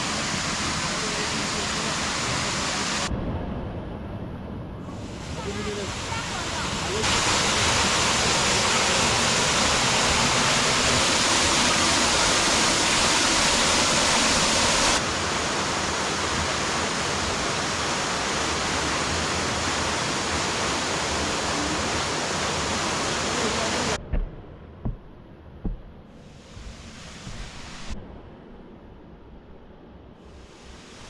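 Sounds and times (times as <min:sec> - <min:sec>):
waterfall rushing: 0:00.0 - 0:03.1, 0:05.0 - 0:24.0.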